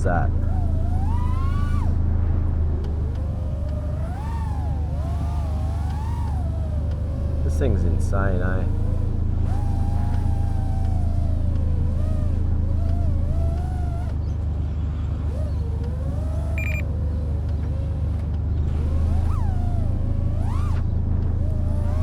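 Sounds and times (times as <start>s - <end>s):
quadcopter motors whining: 0.0s - 22.0s
steady low rumble: 0.0s - 22.0s
short high beep: 16.6s - 16.8s.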